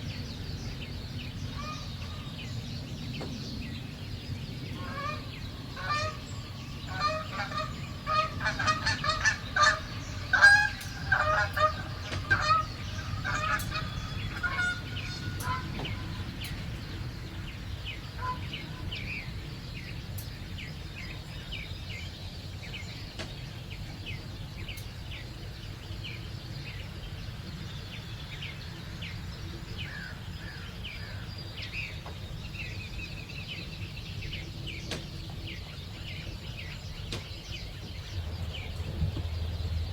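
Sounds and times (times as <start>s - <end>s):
birds calling: 0.0s - 39.9s
low background rumble: 0.0s - 39.9s
small birds chirping: 0.0s - 39.9s.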